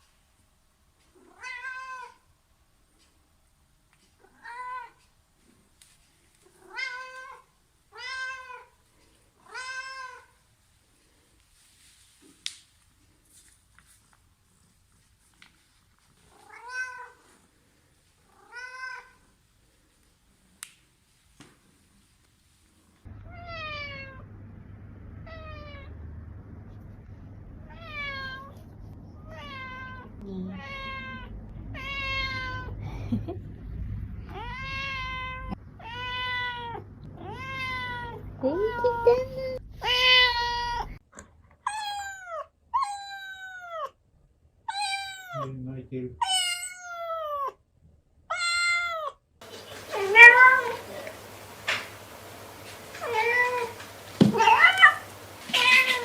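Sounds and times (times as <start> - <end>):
cat meowing: 1.2 - 2.2, 6.6 - 8.7, 9.4 - 10.4, 16.4 - 17.3, 29.2 - 32.7, 34.3 - 39.0, 39.8 - 41.0, 41.7 - 44.0, 44.7 - 45.5, 46.2 - 47.6, 48.3 - 56.0
steady low hum: 23.1 - 35.8.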